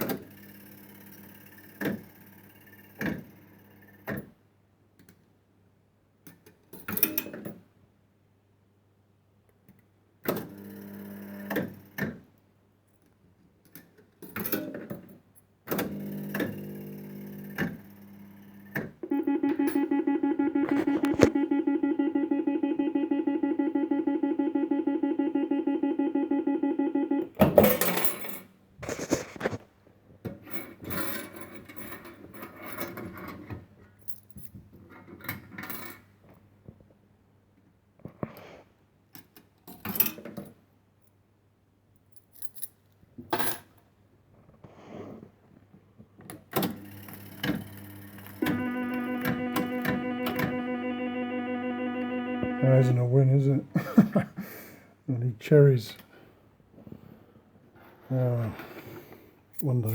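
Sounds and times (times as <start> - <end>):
pulsing buzzing tone: 19.1 - 27.4, 47.6 - 53.0
steady hum: 19.1 - 27.4, 48.2 - 53.2.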